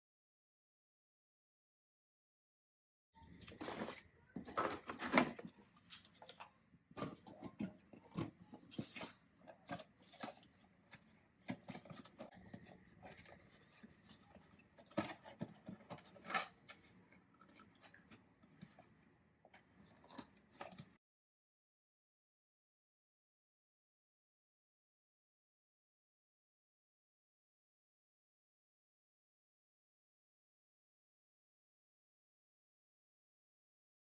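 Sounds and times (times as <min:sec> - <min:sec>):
packaging rustling: 0:03.4 - 0:10.6.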